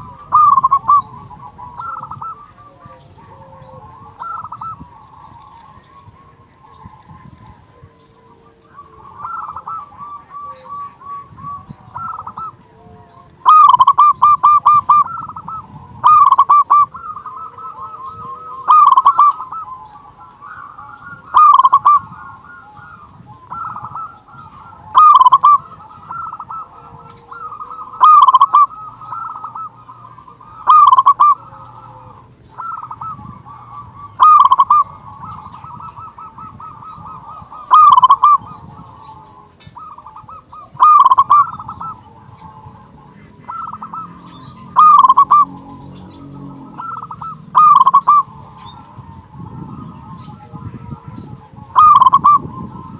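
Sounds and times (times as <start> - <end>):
dove cooing: 0.0 - 52.9
soft trilling coos: 0.0 - 52.9.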